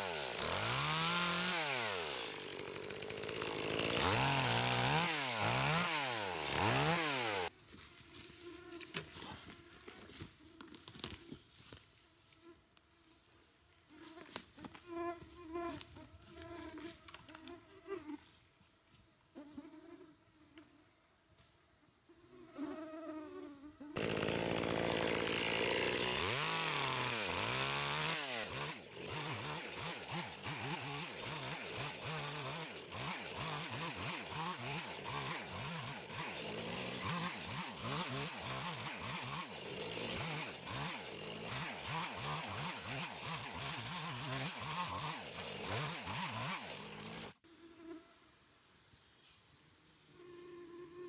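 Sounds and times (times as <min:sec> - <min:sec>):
small engine buzzing: 0:00.0 - 0:07.5, 0:23.9 - 0:48.0.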